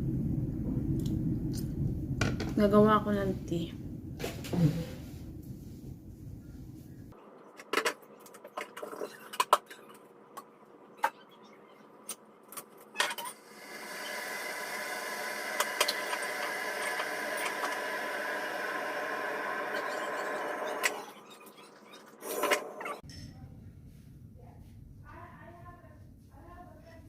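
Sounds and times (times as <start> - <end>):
steady whirring noise: 13.3 - 21.2.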